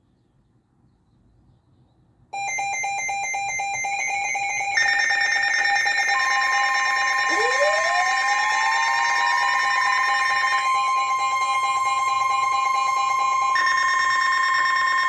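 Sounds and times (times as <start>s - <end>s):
pulsing electronic alarm: 2.4s - 15.0s
steady high alert tones: 2.4s - 15.0s
upward sweeping tone: 7.0s - 15.0s.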